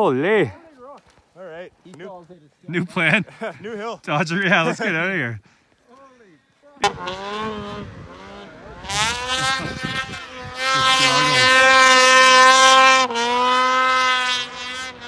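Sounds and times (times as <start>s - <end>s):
snowmobile engine revving: 6.8s - 15.0s.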